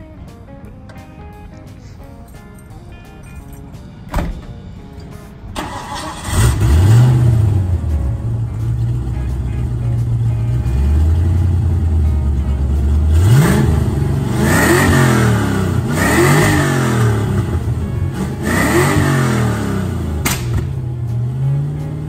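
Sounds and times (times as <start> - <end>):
car engine idling and revving: 5.6 - 22.0.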